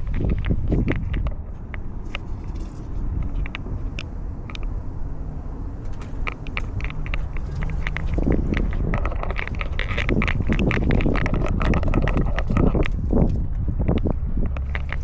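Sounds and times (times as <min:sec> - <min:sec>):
low rumble: 0:00.0 - 0:15.0
scratchy rustling: 0:05.7 - 0:13.4.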